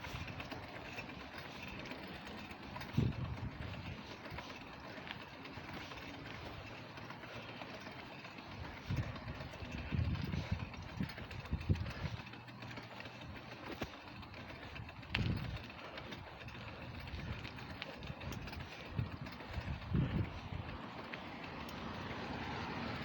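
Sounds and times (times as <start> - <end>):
traffic: 0.0 - 23.0
wind: 0.0 - 23.0.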